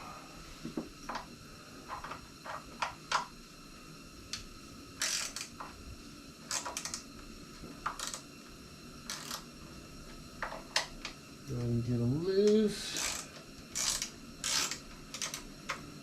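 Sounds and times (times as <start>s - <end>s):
hand tools clicking: 12.5s - 15.5s.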